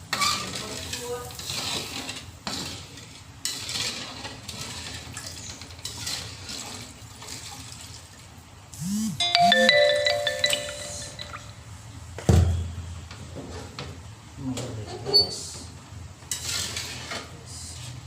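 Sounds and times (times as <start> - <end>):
faint kitchen noise: 0.0 - 8.7, 9.7 - 18.0
short electronic chime: 8.8 - 11.5.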